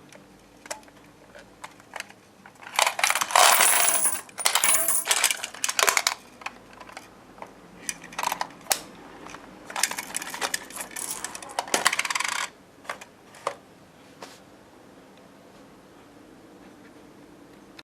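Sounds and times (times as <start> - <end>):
coins clinking and clattering: 2.8 - 5.6, 10.6 - 11.4.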